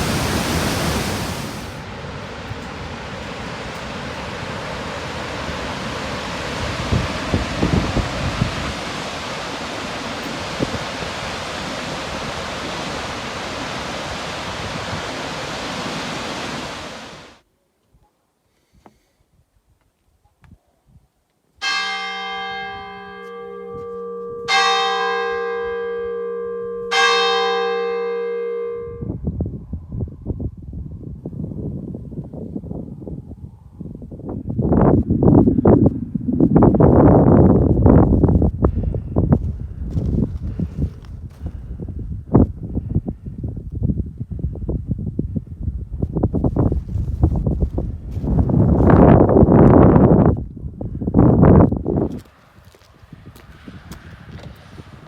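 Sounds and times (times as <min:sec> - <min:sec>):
steady rushing outdoor noise: 0:00.0 - 0:17.4
wind buffeting microphone: 0:00.0 - 0:17.4, 0:28.9 - 0:55.0
bell ringing: 0:21.7 - 0:28.8.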